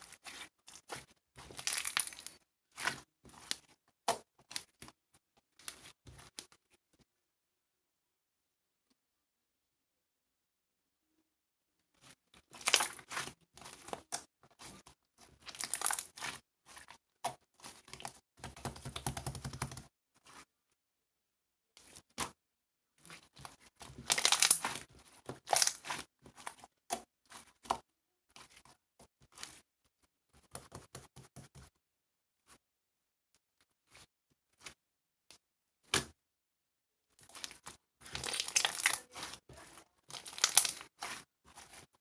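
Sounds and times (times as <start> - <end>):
crinkling and tearing: 23.9 - 24.8, 37.2 - 41.9.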